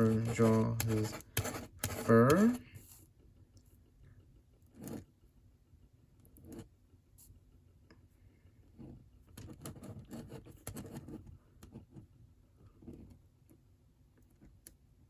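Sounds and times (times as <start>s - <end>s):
drawing tool scratching on paper: 0.0s - 3.0s, 4.7s - 5.1s, 8.8s - 12.1s.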